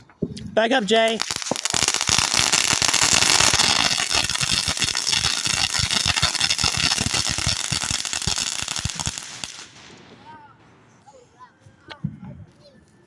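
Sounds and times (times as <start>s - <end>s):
firework crackling: 0.0s - 11.2s.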